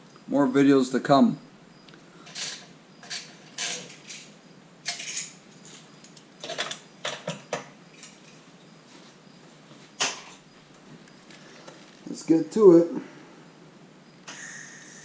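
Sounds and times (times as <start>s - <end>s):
metal tools clinking: 2.2s - 8.4s.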